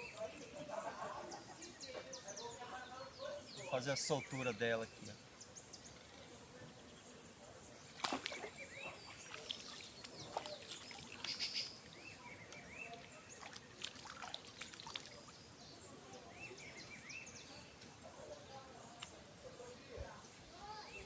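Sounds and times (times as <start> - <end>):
birds chirping: 0.0 - 21.0
fish splashing into river: 7.9 - 11.5, 13.0 - 15.3
water and handling noises: 7.9 - 15.3.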